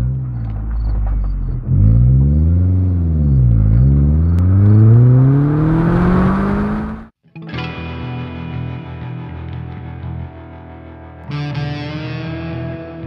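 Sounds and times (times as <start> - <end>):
car engine revving: 0.0 - 7.1
road and wind noise: 0.0 - 7.1.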